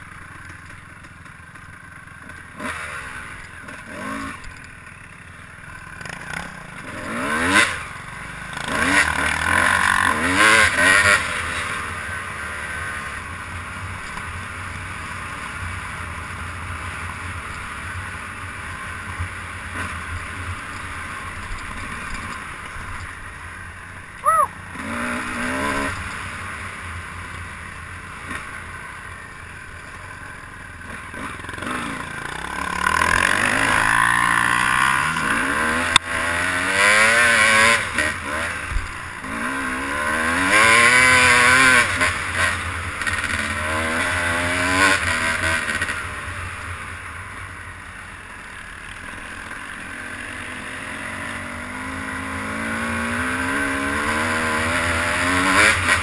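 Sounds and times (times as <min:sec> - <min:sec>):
vehicle engine revving: 0:06.0 - 0:07.9, 0:08.5 - 0:11.9, 0:24.2 - 0:26.3, 0:30.9 - 0:46.1, 0:49.9 - 0:56.0.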